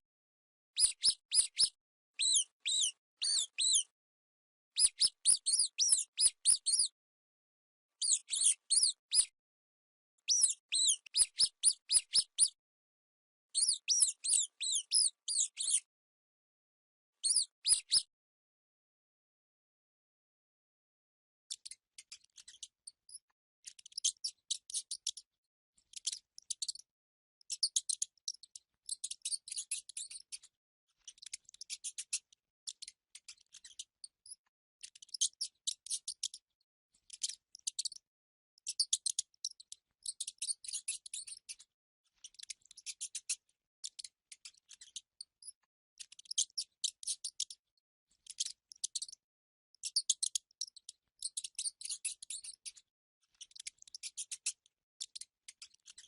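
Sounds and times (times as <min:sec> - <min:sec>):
mice squeaking and chittering: 0:00.8 - 0:04.0, 0:04.8 - 0:07.0, 0:08.0 - 0:09.4, 0:10.3 - 0:12.6, 0:13.6 - 0:15.9, 0:17.2 - 0:18.1, 0:21.5 - 0:25.3, 0:25.9 - 0:26.8, 0:27.5 - 0:36.4, 0:38.7 - 0:47.6, 0:48.2 - 0:49.2, 0:49.8 - 0:56.0.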